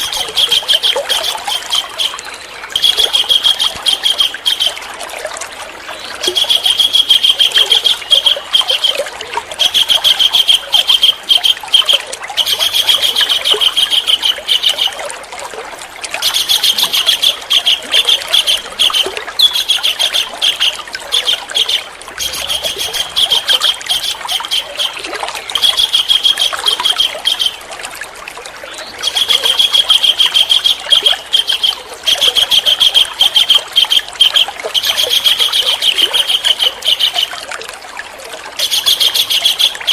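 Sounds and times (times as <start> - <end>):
trickle of running water: 0.0 - 39.9
songbird singing high notes: 16.3 - 27.6.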